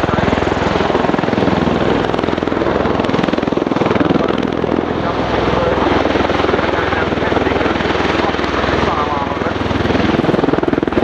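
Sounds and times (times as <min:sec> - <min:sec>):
turbine engines roaring: 0:00.0 - 0:11.0.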